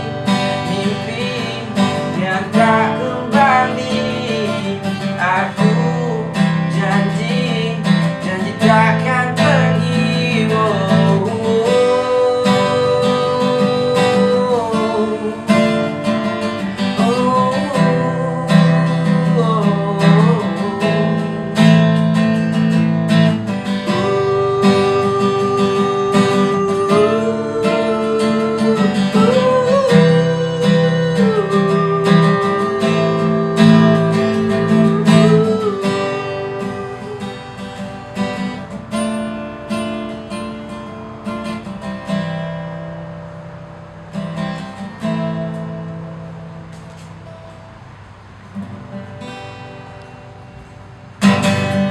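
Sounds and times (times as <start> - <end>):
strummed acoustic guitar: 0.0 - 51.9
sliding melody line: 23.2 - 38.1.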